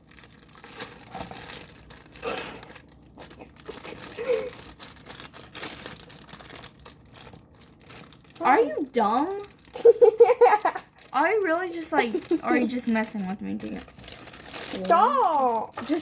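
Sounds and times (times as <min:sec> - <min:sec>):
packaging crinkling and rustling: 0:00.0 - 0:16.0
packaging tearing: 0:00.0 - 0:16.0.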